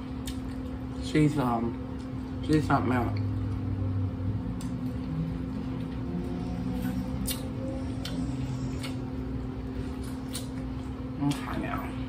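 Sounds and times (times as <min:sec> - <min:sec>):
steady low hum: 0:00.0 - 0:12.0
chewing corn on the cob: 0:04.5 - 0:11.8.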